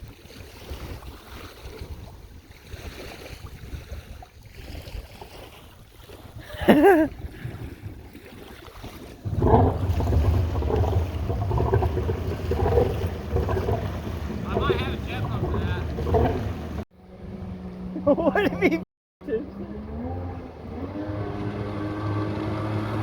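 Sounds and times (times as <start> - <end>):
wind on microphone: 9.0 - 17.5
jet ski engine running: 9.0 - 23.0
low rumble: 9.2 - 17.7.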